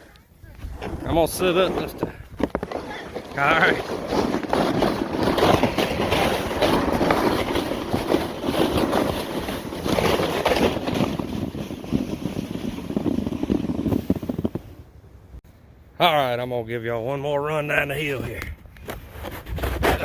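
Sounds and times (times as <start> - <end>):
sled scraping over snow: 0.0 - 14.8, 18.9 - 20.0
wind buffeting microphone: 0.0 - 15.4.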